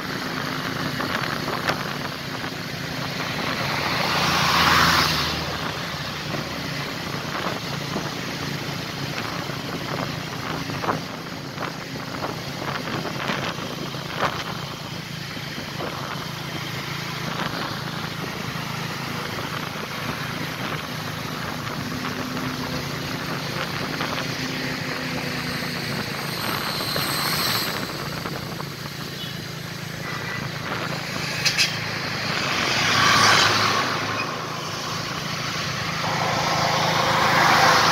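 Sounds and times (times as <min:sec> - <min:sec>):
road noise: 0:00.0 - 0:37.9
truck diesel engine under load: 0:00.0 - 0:37.9.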